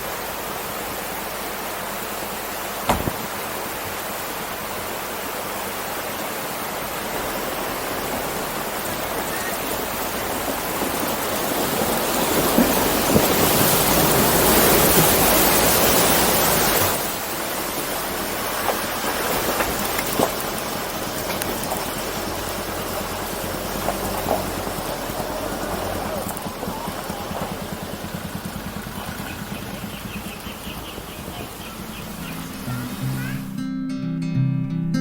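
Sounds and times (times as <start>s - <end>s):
rushing water: 0.0s - 33.6s
single knock: 2.9s - 3.2s.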